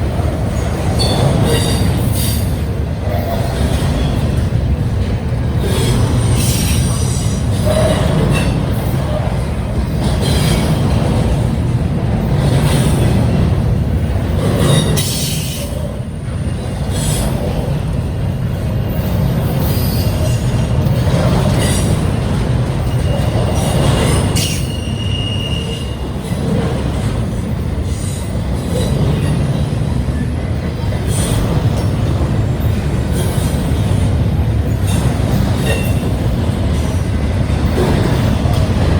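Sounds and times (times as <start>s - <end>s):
steel wheels rumbling on rail: 0.0s - 38.9s
high wheel squeal: 21.6s - 26.2s.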